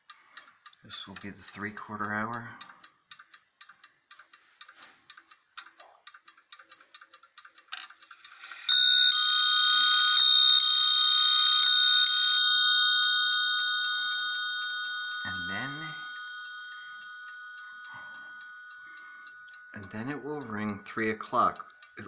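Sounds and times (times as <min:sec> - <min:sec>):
clock ticking: 0:00.0 - 0:22.0
clock chime on two bells: 0:08.7 - 0:22.0.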